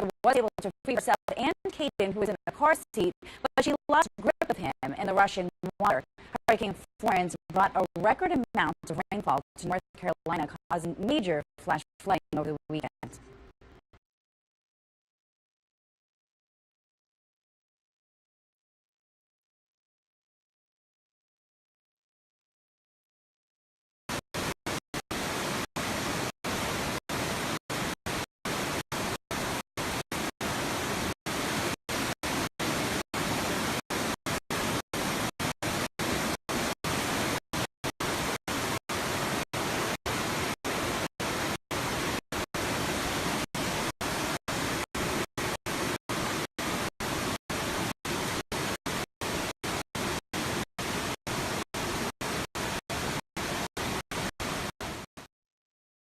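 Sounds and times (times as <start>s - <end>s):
static hiss: 24.4s - 55.1s.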